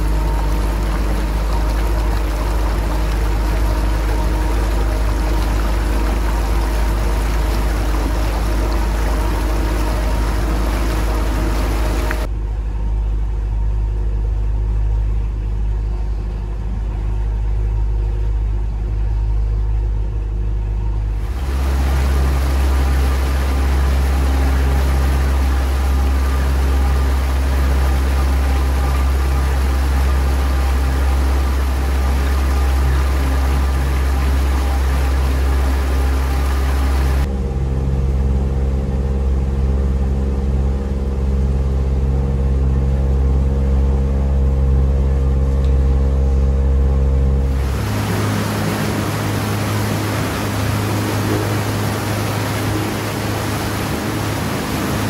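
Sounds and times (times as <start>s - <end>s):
outboard motor running: 0.0s - 12.3s, 21.2s - 55.0s
wake rushing: 0.0s - 12.3s, 21.2s - 37.3s, 47.4s - 55.0s.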